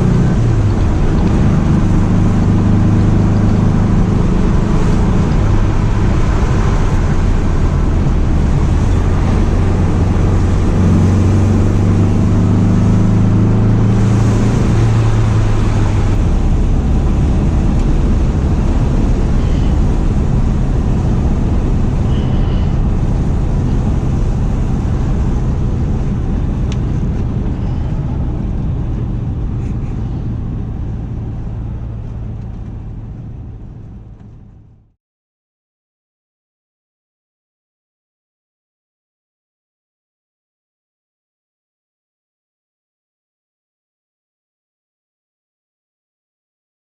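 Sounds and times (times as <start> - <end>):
car engine cruising: 0.0 - 35.0.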